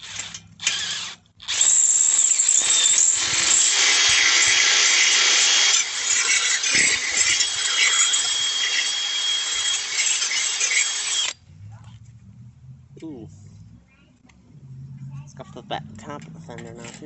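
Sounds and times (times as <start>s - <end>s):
power drill boring into metal: 0.0s - 11.4s.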